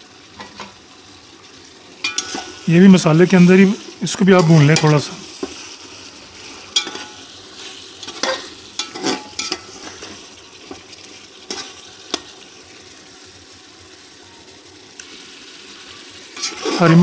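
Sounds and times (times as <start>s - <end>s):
food sizzling in pot: 0.0s - 17.0s
spatula scraping and knocking pot: 2.0s - 2.6s, 6.7s - 7.2s, 8.0s - 10.9s, 11.5s - 12.3s, 16.4s - 17.0s.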